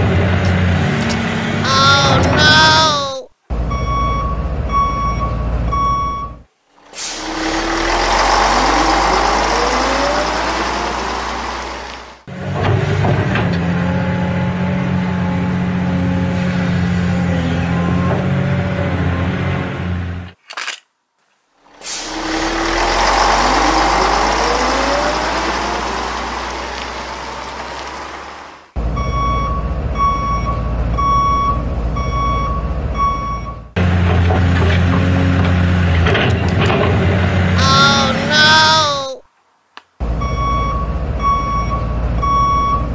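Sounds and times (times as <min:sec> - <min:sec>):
truck engine revving up: 0:00.0 - 0:04.8, 0:06.8 - 0:20.3, 0:21.6 - 0:32.0, 0:33.8 - 0:39.0
reversing alarm beeping: 0:03.7 - 0:06.4, 0:29.0 - 0:33.7, 0:40.2 - 0:42.9.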